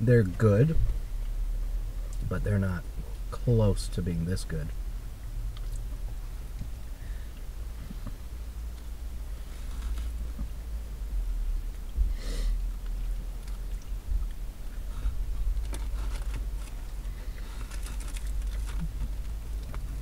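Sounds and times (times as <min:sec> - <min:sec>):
low car interior rumble: 0:00.0 - 0:20.0
paper wrapper crinkling: 0:15.6 - 0:19.4.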